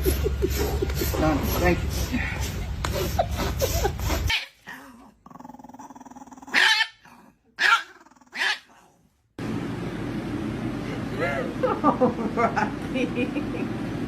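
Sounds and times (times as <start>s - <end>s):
dog growling low: 3.9s - 9.1s
dog barking: 6.5s - 7.0s, 7.6s - 8.7s.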